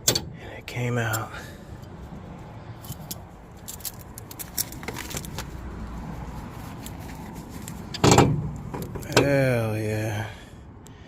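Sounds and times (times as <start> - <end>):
metal tools clinking: 2.8 - 5.2.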